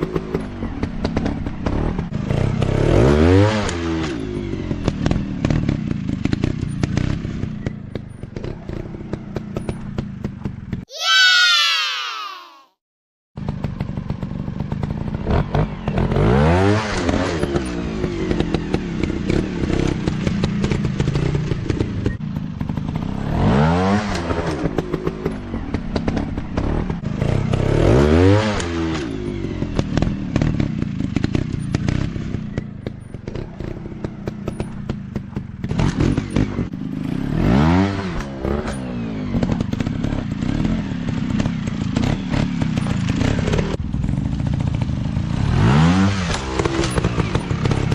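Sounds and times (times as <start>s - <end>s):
dirt bike engine revving: 13.5s - 47.9s.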